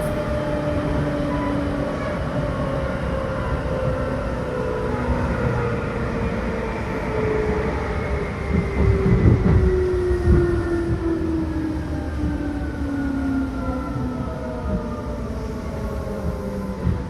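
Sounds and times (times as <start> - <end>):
electric train motor whine: 0.0 - 3.4
wheels rumbling on rail: 0.0 - 17.0.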